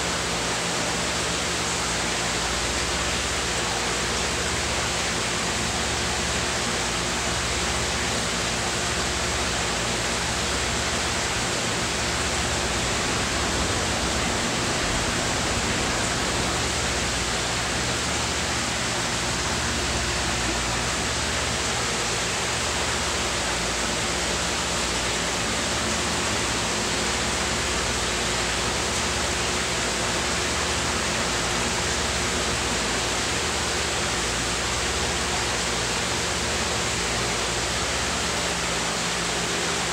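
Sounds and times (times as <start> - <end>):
steady hiss: 9.4 - 22.2.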